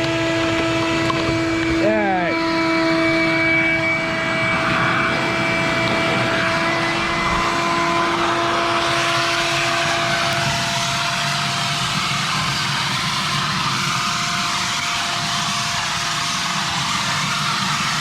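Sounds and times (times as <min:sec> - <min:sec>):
motor droning: 0:00.0 - 0:18.0
hiss: 0:06.7 - 0:18.0.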